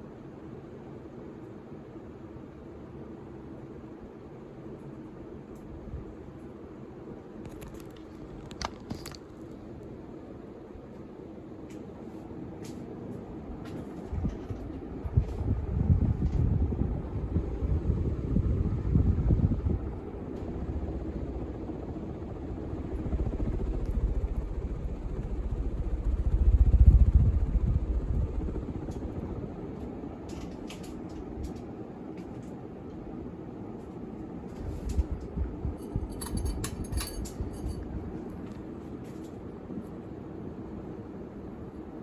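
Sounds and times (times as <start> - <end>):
ceiling fan humming: 0.0 - 42.0
wind buffeting microphone: 13.5 - 29.8, 34.6 - 38.4.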